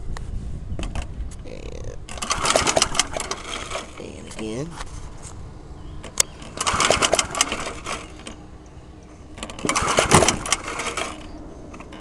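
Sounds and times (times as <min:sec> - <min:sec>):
lawnmower starter pull rattle: 0:02.0 - 0:04.7, 0:06.0 - 0:08.5, 0:09.3 - 0:12.0.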